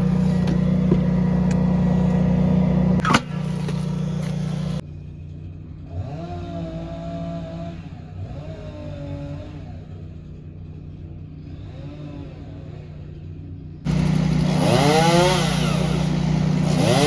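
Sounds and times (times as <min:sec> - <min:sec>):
engine revving: 0:00.0 - 0:04.8, 0:05.8 - 0:10.1, 0:13.8 - 0:17.0.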